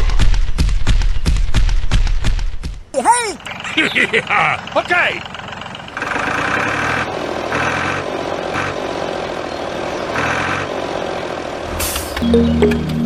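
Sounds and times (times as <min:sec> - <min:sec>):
engine surging: 0:03.4 - 0:13.0
music: 0:12.2 - 0:13.0.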